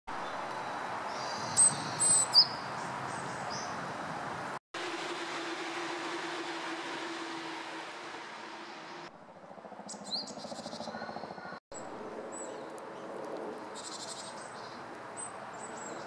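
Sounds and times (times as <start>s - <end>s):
bird high-pitched calls: 0.6s - 3.8s
low hum: 4.8s - 9.7s.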